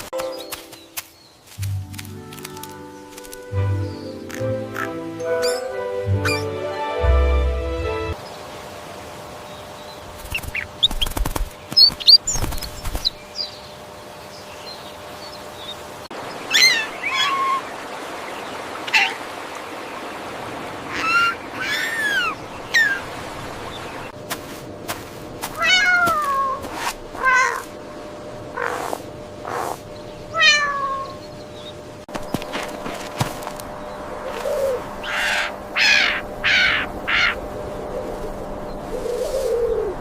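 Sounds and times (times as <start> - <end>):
cats meowing: 25.6 - 26.6, 27.2 - 27.7, 30.3 - 31.2.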